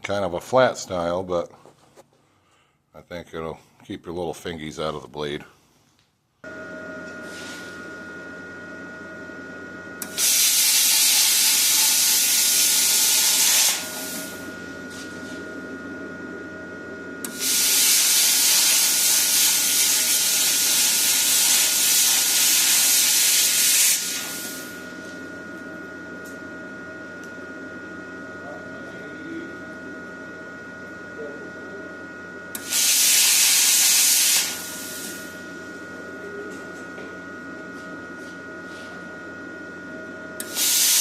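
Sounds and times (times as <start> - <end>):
machine whine: 6.4 - 41.0
plasma cutter hissing: 10.0 - 14.4, 17.2 - 24.8, 32.6 - 35.4, 40.4 - 41.0.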